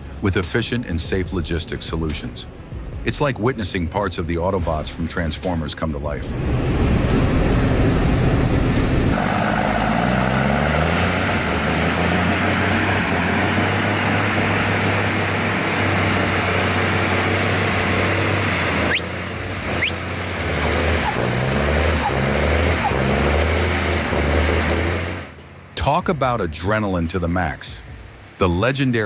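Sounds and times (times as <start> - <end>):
diesel truck engine drone: 0.0 - 29.0
road and traffic noise: 0.0 - 29.0
brief rising squeals: 18.8 - 24.8.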